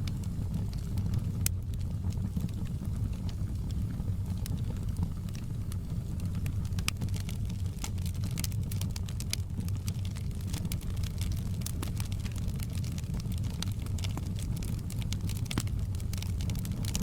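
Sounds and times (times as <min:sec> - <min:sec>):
fire rumbling: 0:00.0 - 0:17.0
wood fire crackling and popping: 0:00.0 - 0:17.0.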